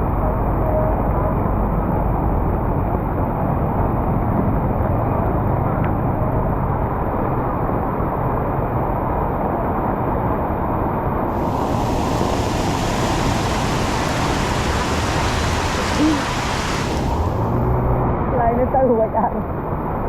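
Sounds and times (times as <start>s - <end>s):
traffic on a wet street: 0.1s - 20.0s
heavy rain: 11.3s - 18.0s.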